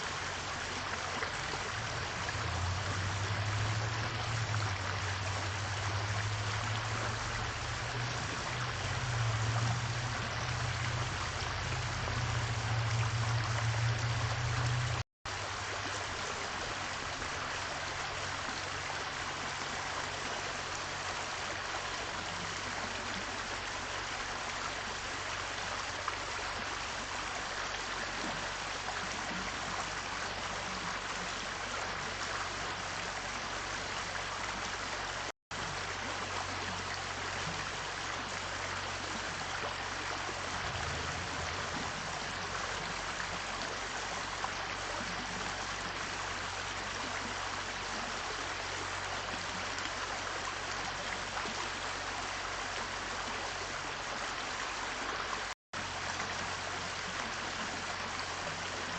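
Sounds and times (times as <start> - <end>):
running water rushing: 0.0 - 58.9
low hum: 6.2 - 15.0, 40.5 - 43.2.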